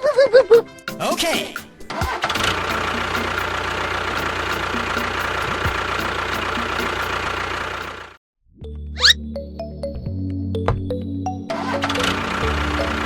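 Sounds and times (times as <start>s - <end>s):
engine idling: 1.8s - 8.2s, 11.5s - 13.0s.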